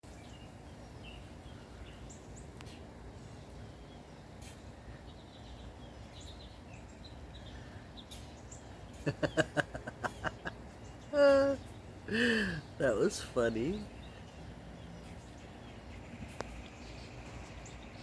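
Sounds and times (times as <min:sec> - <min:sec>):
small birds chirping: 0:00.0 - 0:18.0
person laughing: 0:09.0 - 0:12.6.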